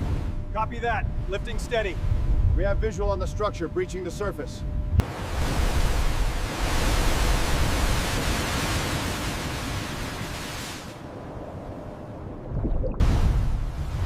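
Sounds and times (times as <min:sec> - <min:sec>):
low water rumble: 0:04.7 - 0:14.0
seawater rushing hiss: 0:05.0 - 0:11.0.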